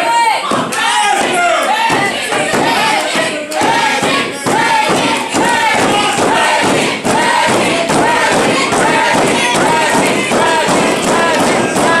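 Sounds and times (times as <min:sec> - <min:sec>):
crowd chanting and shouting: 0:00.0 - 0:12.0
thuds from wrestling ring: 0:00.5 - 0:12.0.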